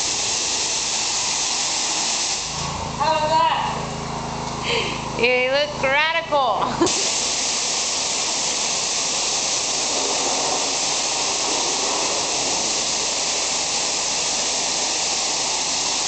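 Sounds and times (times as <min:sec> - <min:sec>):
pressure washer spraying water: 0:00.0 - 0:03.0, 0:06.8 - 0:16.0.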